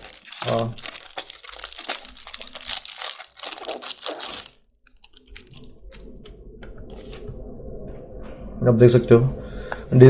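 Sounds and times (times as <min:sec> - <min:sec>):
packaging crinkling: 0:00.0 - 0:06.0.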